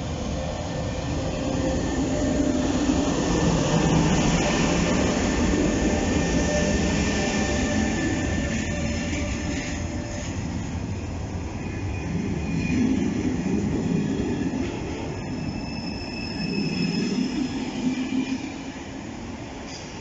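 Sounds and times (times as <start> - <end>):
wheels rumbling on rail: 0.0 - 20.0
faint high wheel squeal: 14.0 - 18.7.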